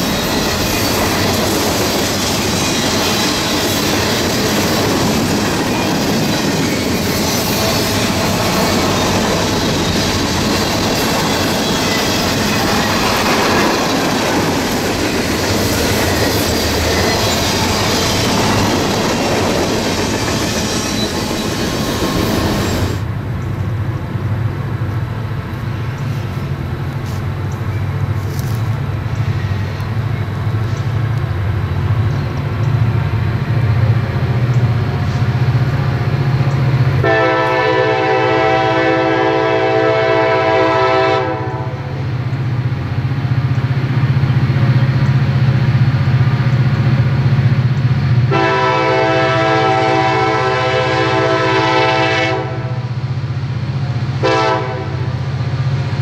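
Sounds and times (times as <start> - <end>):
diesel locomotive engine rumbling: 0.0 - 56.0
train air horn blast: 37.0 - 42.0, 48.3 - 53.0, 54.2 - 55.2.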